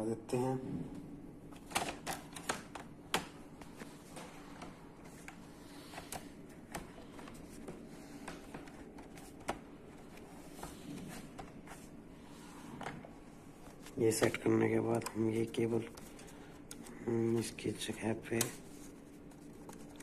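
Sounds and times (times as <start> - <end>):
faint steady hum: 0.0 - 20.0
plastic laptop parts clicking: 1.6 - 3.4.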